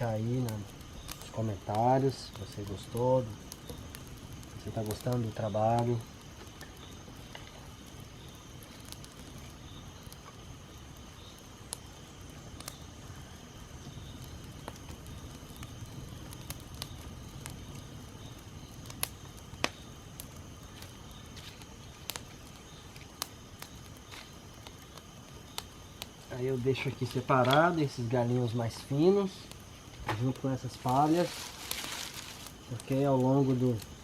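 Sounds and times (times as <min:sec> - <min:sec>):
campfire crackling and popping: 0:00.0 - 0:34.0.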